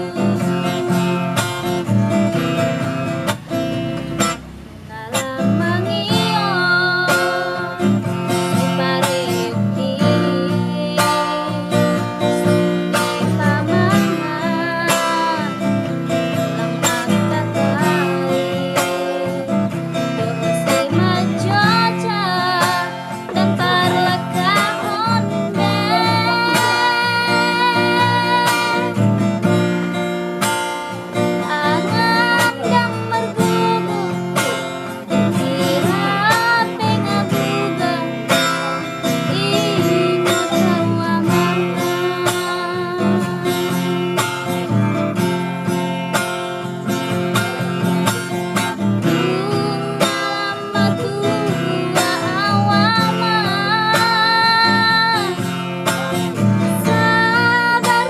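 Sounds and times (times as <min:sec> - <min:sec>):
woman singing with vibrato: 0:00.0 - 0:30.5, 0:31.1 - 0:45.5, 0:46.6 - 0:58.0
acoustic guitar: 0:00.0 - 0:58.0.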